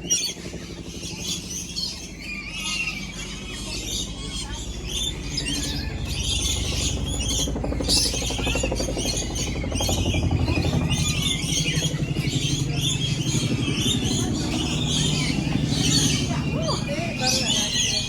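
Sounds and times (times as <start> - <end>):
many birds chirping: 0.0 - 18.0.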